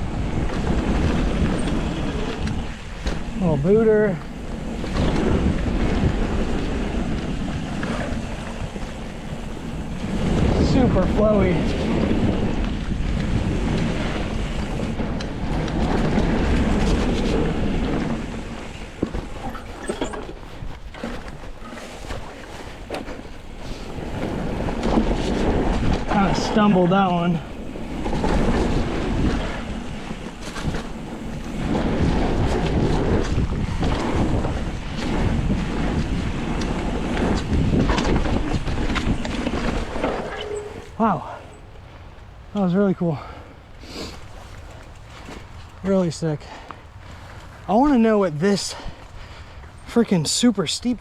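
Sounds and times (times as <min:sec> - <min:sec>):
bike clicks and rattles: 0:00.0 - 0:41.6, 0:44.1 - 0:50.8
bike tyre noise on dirt: 0:00.0 - 0:51.0
wind buffeting microphone: 0:00.0 - 0:51.0.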